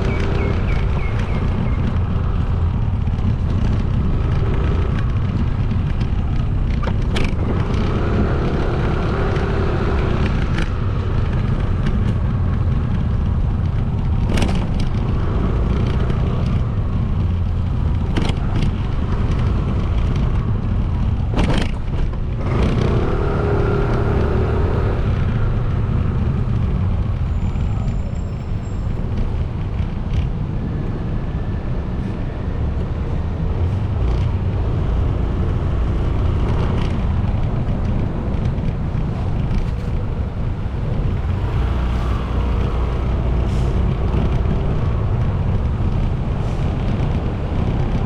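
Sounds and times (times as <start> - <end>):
motorcycle engine: 0.0 - 30.3, 34.1 - 46.3
surrounding vehicles: 0.0 - 48.0.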